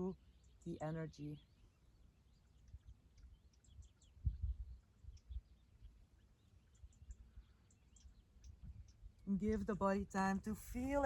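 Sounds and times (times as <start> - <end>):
faint bird chirps: 0.0 - 9.8
soft low thumps: 4.2 - 4.7.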